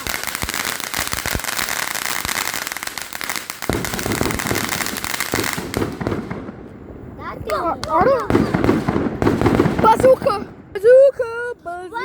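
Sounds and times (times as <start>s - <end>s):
firework crackling: 0.0s - 11.1s.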